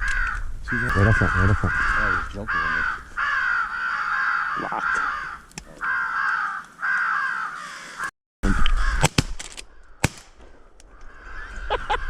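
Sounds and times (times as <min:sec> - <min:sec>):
crows cawing: 0:00.0 - 0:12.0
shotgun shots: 0:09.0 - 0:10.4.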